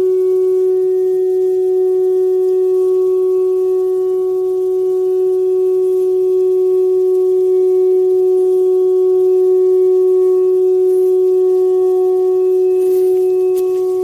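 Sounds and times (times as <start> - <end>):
ram's horn long steady note: 0.0 - 14.0.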